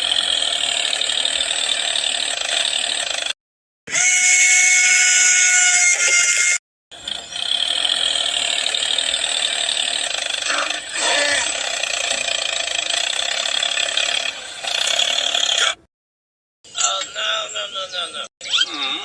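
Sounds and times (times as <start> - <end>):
small electric motor whirring: 0.0 - 15.8.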